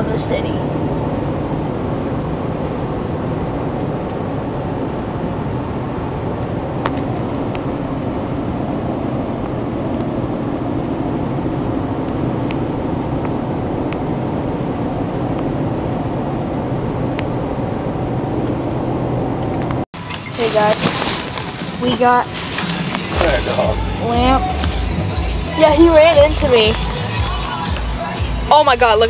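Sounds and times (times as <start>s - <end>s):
car cabin road and engine rumble: 0.0s - 29.0s.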